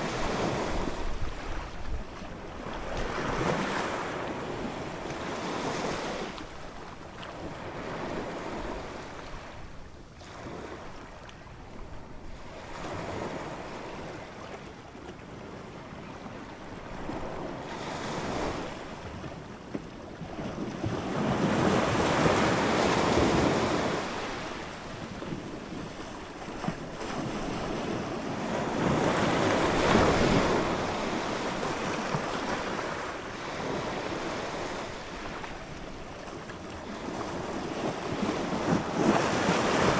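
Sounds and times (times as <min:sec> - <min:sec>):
ocean waves breaking: 0:21.0 - 0:39.9.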